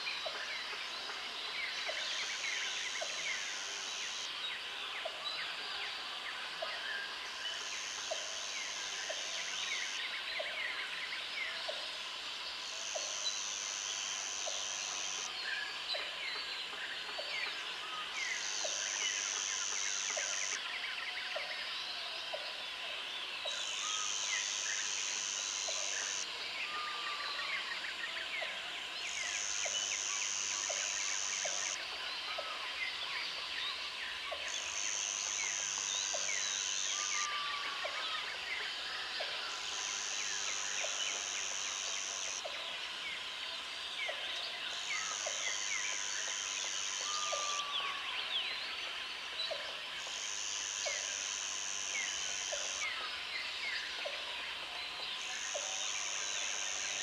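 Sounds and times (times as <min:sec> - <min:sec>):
high insect buzz: 0:12.8 - 0:15.3, 0:23.9 - 0:26.3, 0:39.6 - 0:42.5, 0:50.0 - 0:53.0.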